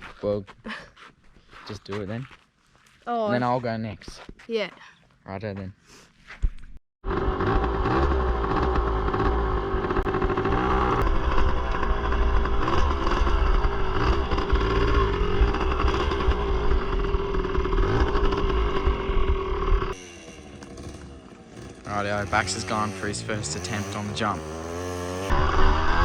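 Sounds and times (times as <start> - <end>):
pit bike engine revving: 7.0 - 26.0.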